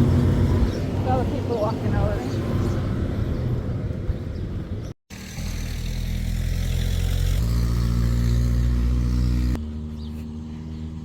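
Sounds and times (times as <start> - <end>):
engine running: 5.1 - 11.0.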